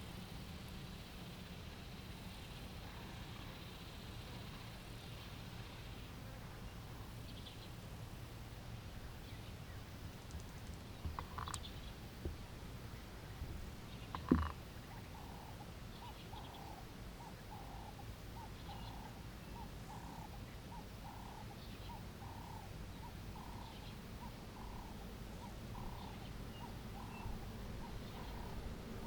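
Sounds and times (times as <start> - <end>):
low steady rumble: 0.0 - 29.0
faint animal calls: 2.4 - 4.8, 10.4 - 29.0.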